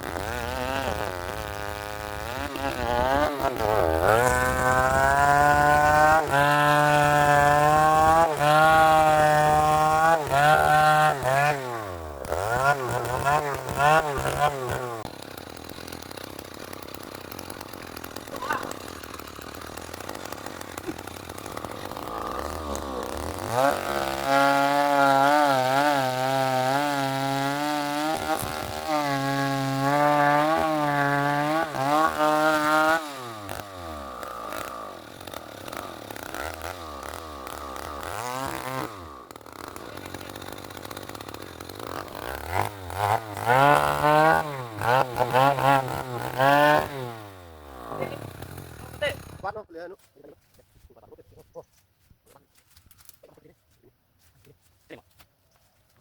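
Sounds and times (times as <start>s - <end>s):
chainsaw cutting wood: 0.0s - 49.7s
chainsaw revving and idling: 0.0s - 49.7s.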